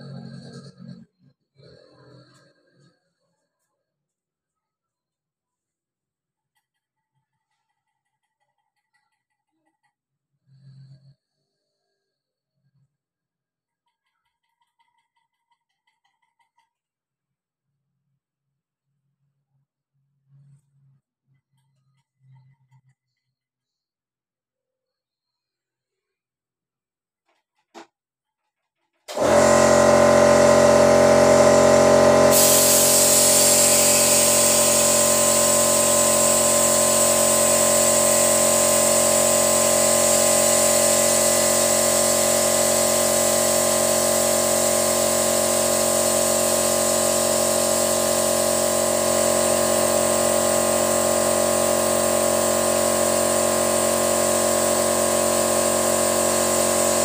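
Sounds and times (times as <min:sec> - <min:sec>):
motor humming: 0:29.1 - 0:57.0.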